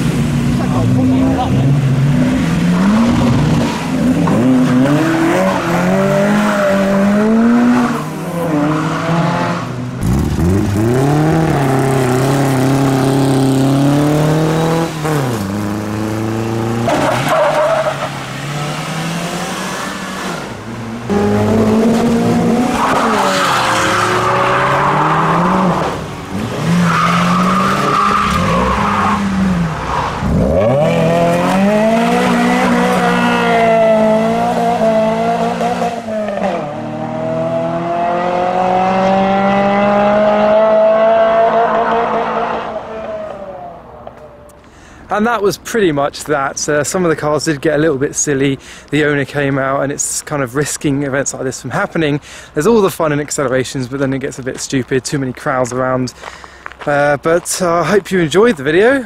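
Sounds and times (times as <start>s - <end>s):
car engine revving: 0.0s - 44.1s.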